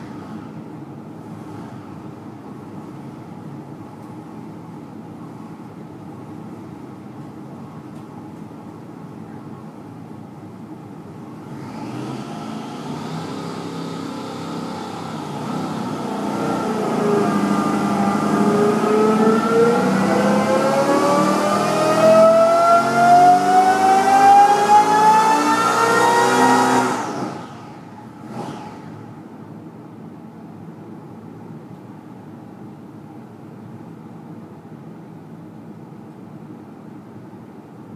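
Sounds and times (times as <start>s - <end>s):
engine revving on a dyno: 0.0s - 3.2s, 11.3s - 29.4s.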